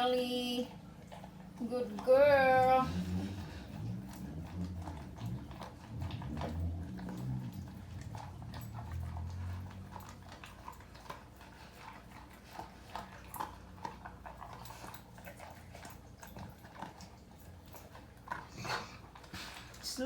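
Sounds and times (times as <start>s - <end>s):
dog crunching food from bowl: 0.8s - 20.0s
low rumble: 2.2s - 10.4s.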